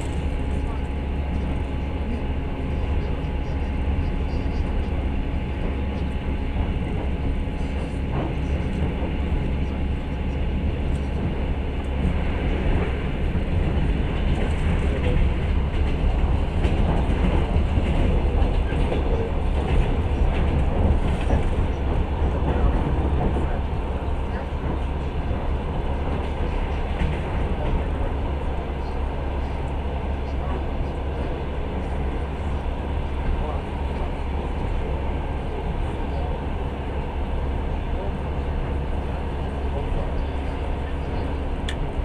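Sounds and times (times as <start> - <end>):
train wheels rumbling on rails: 0.0 - 42.0.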